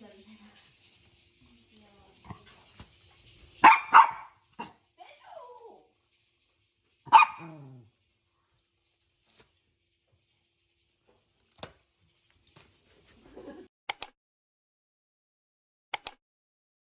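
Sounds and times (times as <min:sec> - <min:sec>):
small dog barking: 0:03.6 - 0:04.8, 0:07.1 - 0:07.9.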